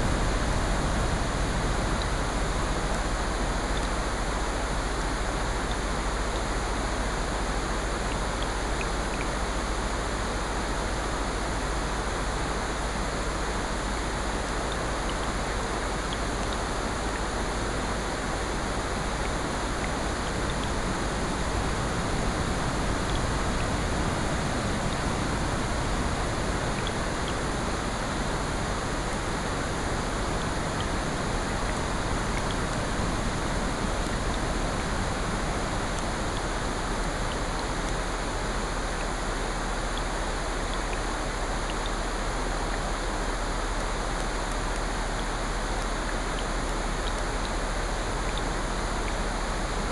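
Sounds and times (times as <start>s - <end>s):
rain: 0.0s - 49.9s
faint ticks: 5.6s - 6.5s, 8.0s - 9.4s, 30.7s - 49.3s.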